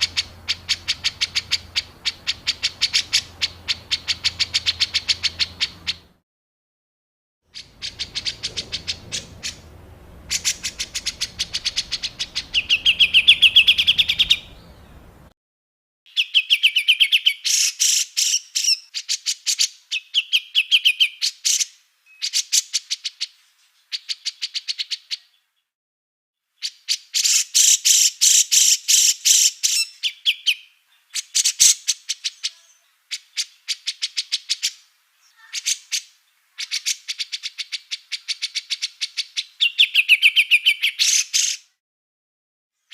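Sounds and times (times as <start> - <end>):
songbirds chattering calls: 0.0 - 6.2, 7.6 - 15.3, 26.6 - 41.7.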